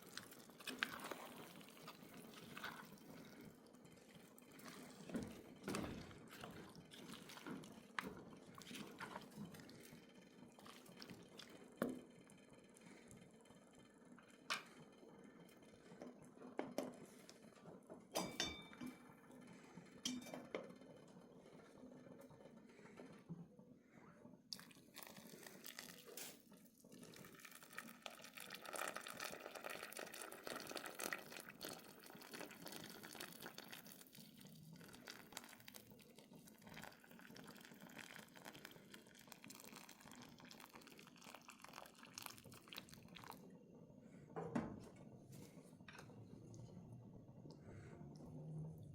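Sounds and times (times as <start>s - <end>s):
liquid dripping and pouring: 0.0s - 13.0s, 24.5s - 43.6s
small knocks and clinks: 18.1s - 19.0s.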